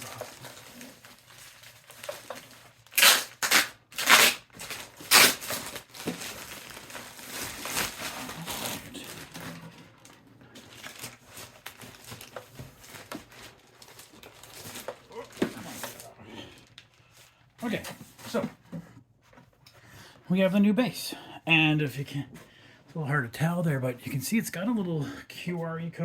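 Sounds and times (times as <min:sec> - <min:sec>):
packaging crinkling: 0:00.0 - 0:16.1
packaging rustling: 0:00.0 - 0:17.1.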